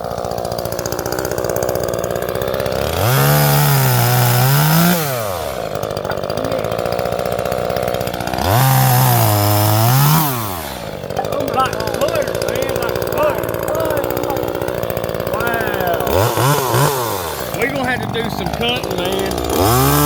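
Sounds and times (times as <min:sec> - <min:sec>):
chainsaw idling and revving: 0:00.0 - 0:20.0.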